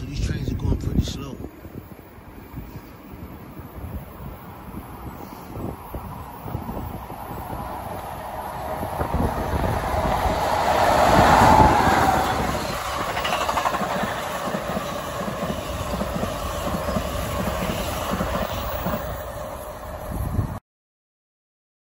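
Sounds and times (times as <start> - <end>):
train wheels clattering over rails: 7.3 - 19.3.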